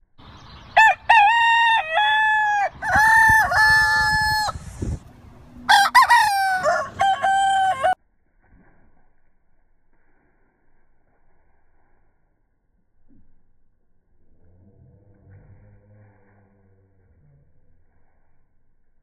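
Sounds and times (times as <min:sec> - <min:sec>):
rooster crowing: 0:00.8 - 0:04.8, 0:05.6 - 0:08.0.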